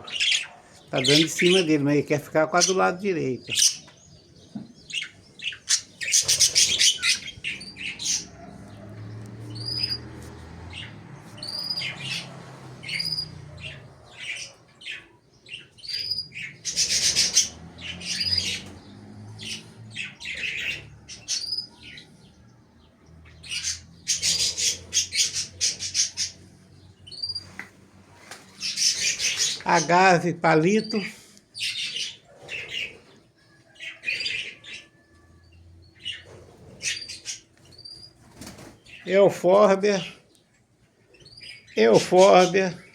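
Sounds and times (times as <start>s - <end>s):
budgerigars chirping: 0.0s - 1.8s, 2.4s - 8.8s, 9.5s - 10.1s, 10.7s - 22.1s, 23.2s - 27.6s, 28.6s - 33.1s, 36.0s - 39.2s
harsh squawks: 5.0s - 8.7s, 10.7s - 22.1s, 23.4s - 27.4s.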